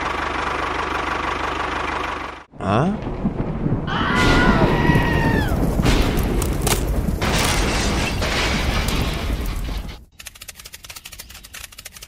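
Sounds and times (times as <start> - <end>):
deep rumbling boom: 2.9 - 9.6
sharp cracks: 4.2 - 12.0.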